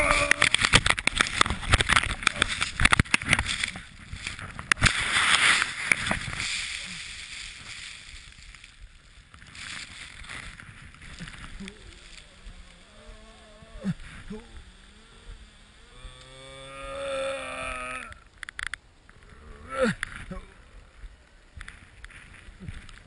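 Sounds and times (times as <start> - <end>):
skis striking snow: 0.0 - 12.7
sliding on snow: 0.0 - 18.1, 19.0 - 23.0.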